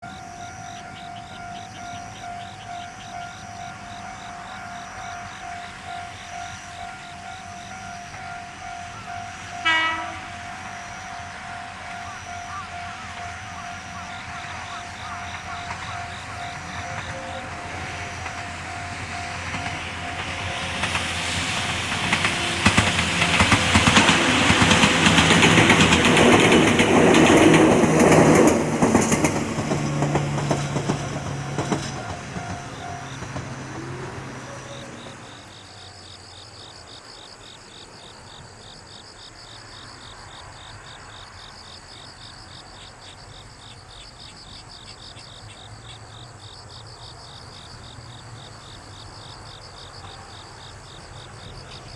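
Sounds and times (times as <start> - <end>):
crickets chirping: 0.0 - 51.9
train wheels clattering: 0.8 - 35.6.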